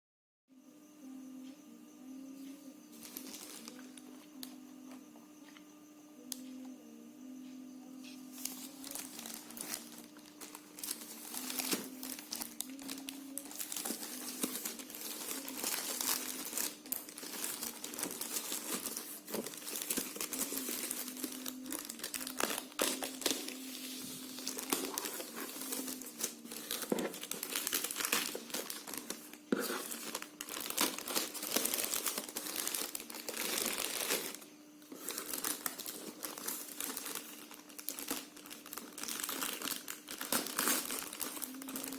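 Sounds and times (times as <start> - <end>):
faint low hum: 0.5 - 41.9
packaging paper crinkling: 3.0 - 4.2, 8.4 - 41.9.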